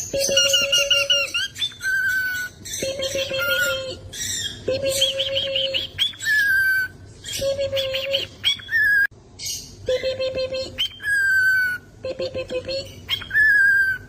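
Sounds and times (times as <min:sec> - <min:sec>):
cockatiel whistling: 0:00.0 - 0:09.1, 0:10.8 - 0:11.9, 0:13.1 - 0:14.0.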